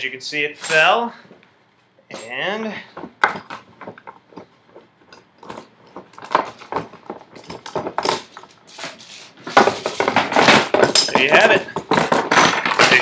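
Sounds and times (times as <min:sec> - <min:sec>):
steel chain clinking: 0:00.6 - 0:01.1, 0:02.1 - 0:02.6, 0:05.1 - 0:13.0.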